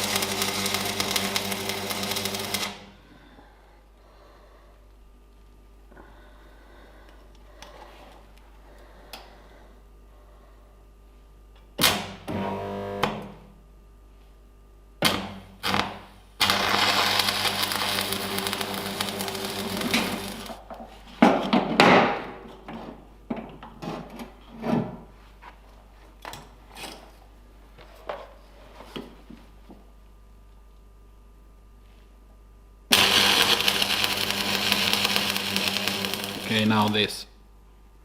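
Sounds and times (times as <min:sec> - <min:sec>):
power tool running: 0:00.0 - 0:02.9, 0:16.4 - 0:20.6, 0:32.9 - 0:37.1.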